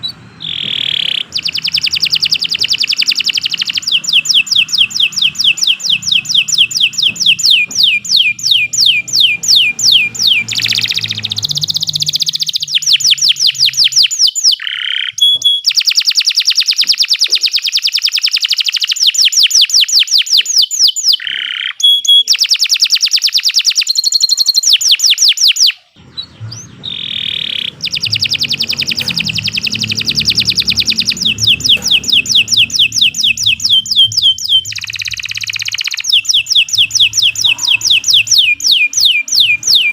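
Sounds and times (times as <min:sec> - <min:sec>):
canary singing rapid trills: 0:00.0 - 0:39.9.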